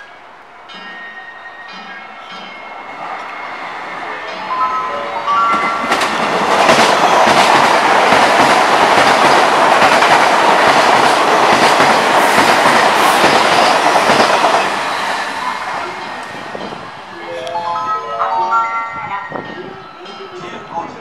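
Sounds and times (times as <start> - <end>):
electric train passing at speed: 0.0 - 21.0.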